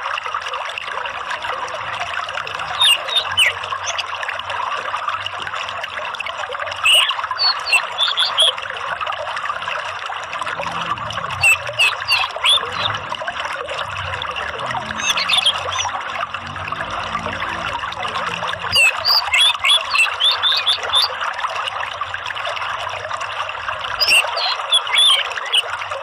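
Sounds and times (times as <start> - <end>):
water trickling: 0.0 - 26.0
high bird chirps: 2.6 - 4.0, 6.8 - 8.6, 11.4 - 13.0, 14.9 - 15.9, 18.6 - 21.1, 24.0 - 25.7.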